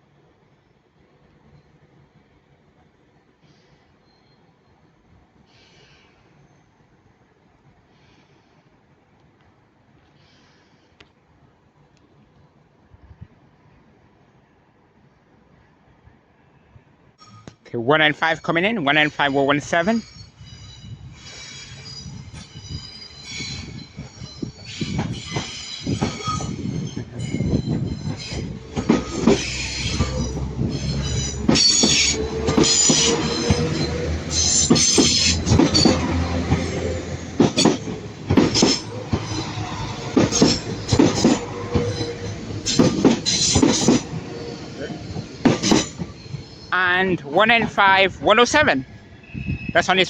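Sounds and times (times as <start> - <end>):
train wheels squealing on track: 3.4 - 6.8, 17.2 - 50.0
train wheels clicking over rail joints: 21.2 - 46.6.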